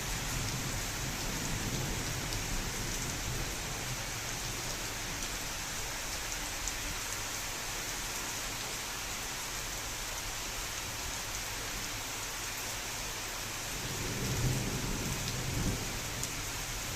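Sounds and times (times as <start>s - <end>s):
rain falling: 0.0s - 16.9s
low thunder rumble: 13.8s - 16.3s.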